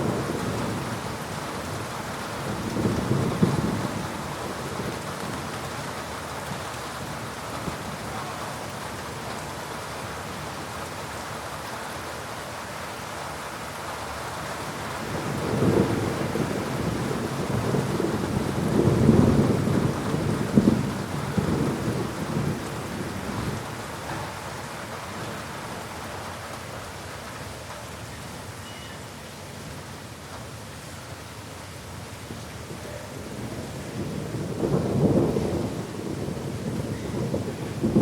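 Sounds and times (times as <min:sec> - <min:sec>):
rolling thunder: 0:00.0 - 0:05.6, 0:15.0 - 0:25.4, 0:33.1 - 0:38.0
heavy rain: 0:00.0 - 0:38.0.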